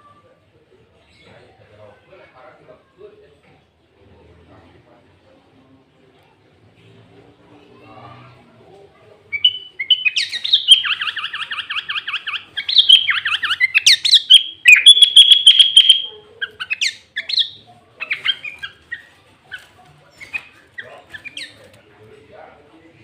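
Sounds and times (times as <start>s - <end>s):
bird chirps: 9.3s - 21.6s
bird singing buzzy trills: 9.4s - 18.7s.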